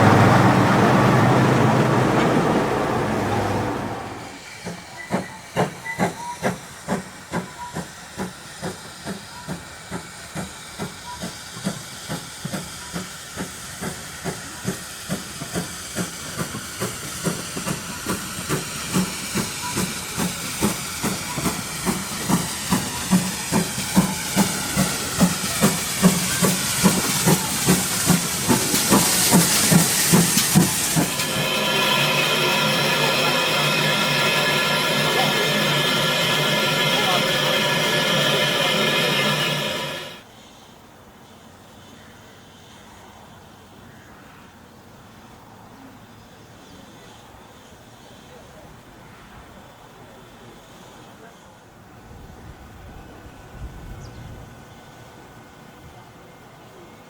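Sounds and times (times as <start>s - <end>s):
steam locomotive chuffing: 0.0s - 40.4s
hiss of steam: 0.0s - 43.9s, 46.4s - 53.5s.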